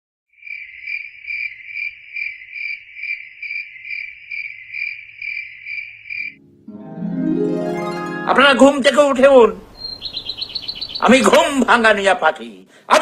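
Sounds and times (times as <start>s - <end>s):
cricket chirping: 0.3s - 6.4s, 9.7s - 11.2s.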